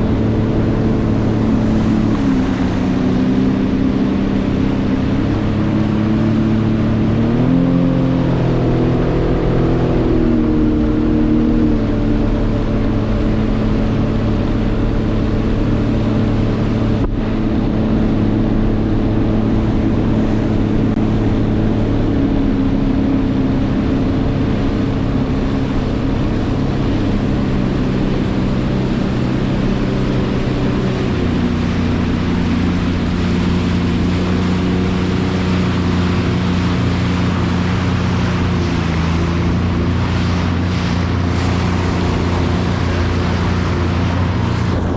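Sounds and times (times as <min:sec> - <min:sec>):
jet ski engine running: 0:00.0 - 0:44.9
rushing noise: 0:08.2 - 0:44.9.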